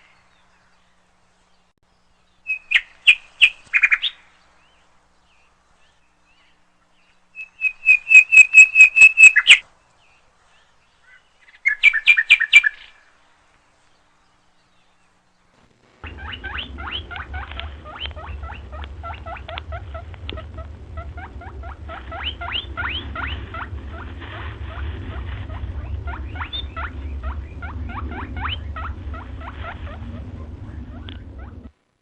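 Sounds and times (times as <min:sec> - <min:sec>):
steady low rumble: 0:13.9 - 0:32.0.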